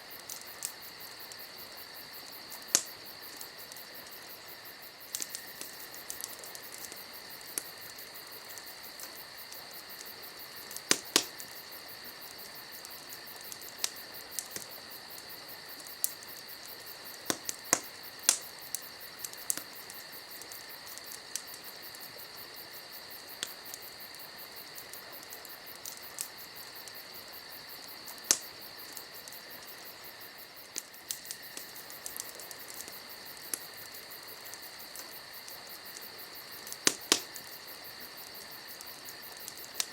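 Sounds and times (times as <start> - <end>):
campfire crackling: 0.0 - 39.9
insect chirring: 0.0 - 39.9
burning wood popping: 0.1 - 22.1, 23.4 - 39.9.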